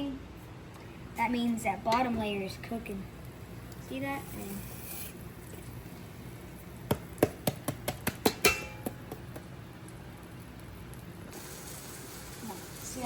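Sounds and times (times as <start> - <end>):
cookware clinking: 8.2 - 9.0.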